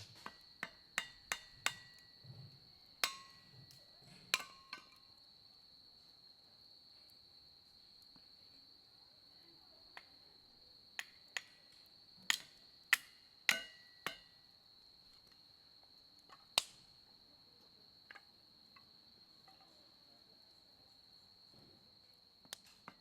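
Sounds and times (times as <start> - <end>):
firewood popping and cracking: 0.0 - 2.2, 3.0 - 5.2, 11.0 - 14.3, 16.2 - 16.9
high insect trill: 0.0 - 23.0.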